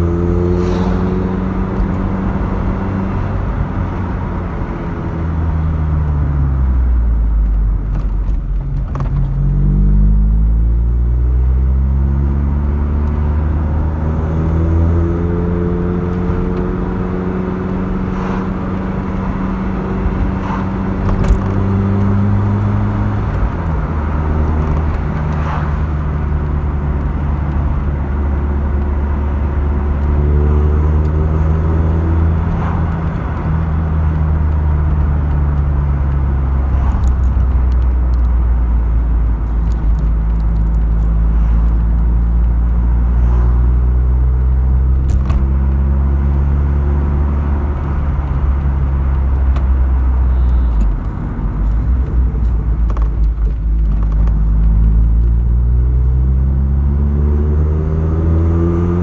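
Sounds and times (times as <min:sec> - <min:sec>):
car engine revving while driving: 0:00.0 - 0:59.0.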